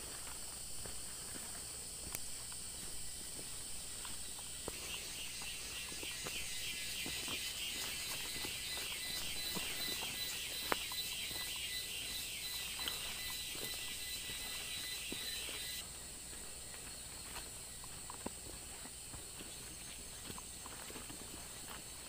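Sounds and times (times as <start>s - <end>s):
insect chorus buzzing: 0.0s - 22.0s.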